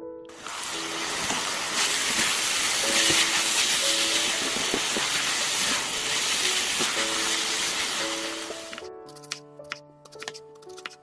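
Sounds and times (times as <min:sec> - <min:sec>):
soft piano music: 0:00.0 - 0:11.0
food sizzling in oil: 0:00.3 - 0:08.8.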